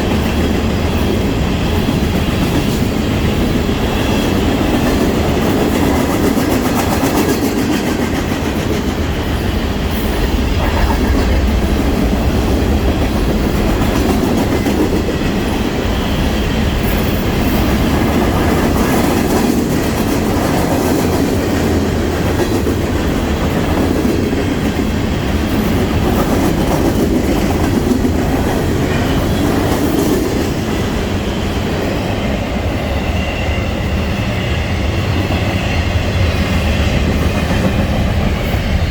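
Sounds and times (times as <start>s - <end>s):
freight train cars rolling: 0.0s - 38.9s.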